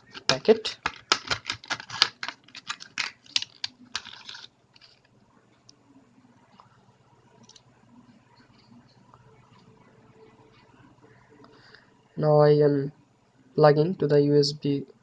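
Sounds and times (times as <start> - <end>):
plastic packet crackling: 0.0 - 5.1
faint room noise: 0.0 - 15.0.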